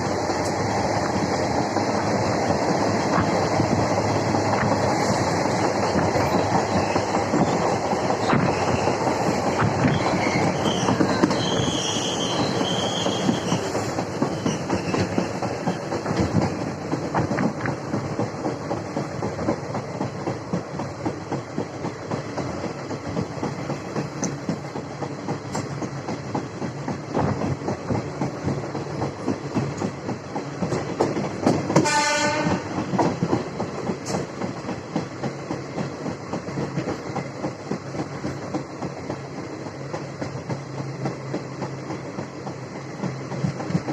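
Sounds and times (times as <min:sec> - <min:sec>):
train rumble: 0:00.0 - 0:43.9
train wheels clattering on rails: 0:00.0 - 0:43.9
train horn: 0:31.8 - 0:32.7.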